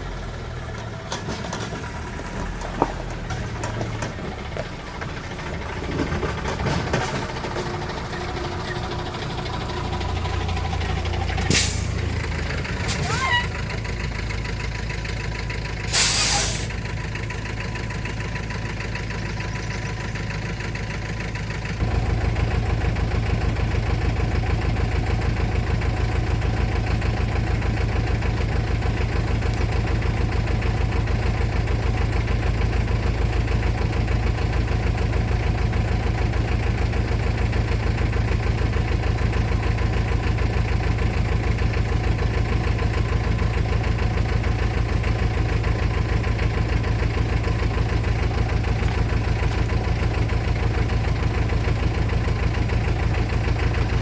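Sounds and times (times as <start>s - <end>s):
truck engine idling: 0.0s - 54.0s
short air hiss: 11.5s - 12.0s, 15.9s - 16.7s.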